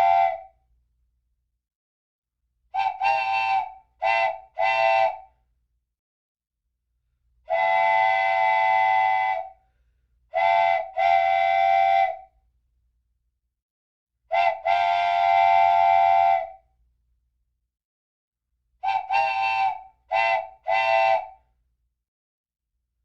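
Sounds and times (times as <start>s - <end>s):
train whistle blasts: 0.0s - 0.5s, 2.7s - 5.3s, 7.5s - 9.6s, 10.3s - 12.3s, 14.3s - 16.6s, 18.8s - 21.4s.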